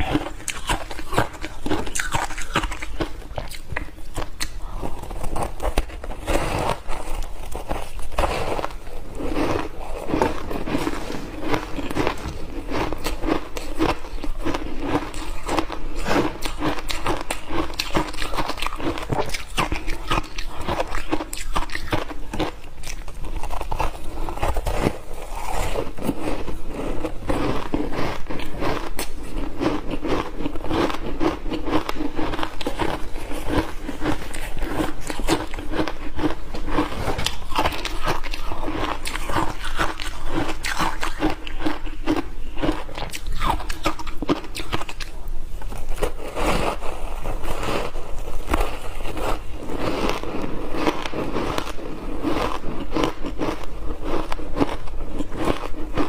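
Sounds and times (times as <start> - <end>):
ice crunching while chewed: 0.0 - 56.0.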